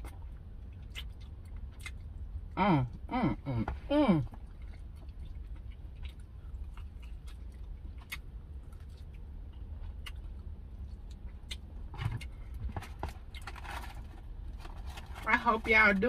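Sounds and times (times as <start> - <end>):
wet chewing and lip smacks: 0.0 - 2.6, 4.4 - 12.4
low car cabin rumble: 0.0 - 16.0.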